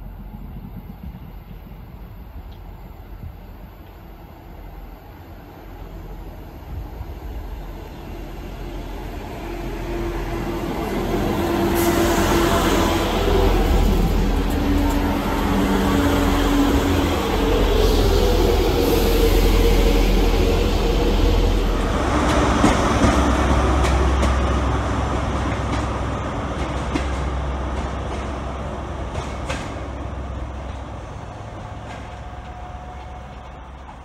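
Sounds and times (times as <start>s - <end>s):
train running past: 0.0s - 34.0s.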